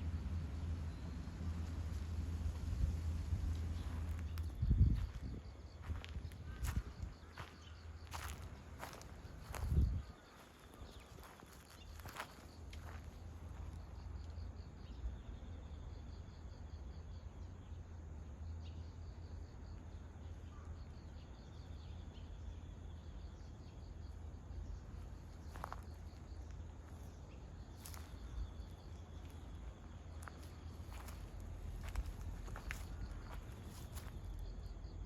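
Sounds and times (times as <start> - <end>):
steady low rumble: 0.0 - 15.0, 24.2 - 35.0
insects chirping: 0.0 - 35.0.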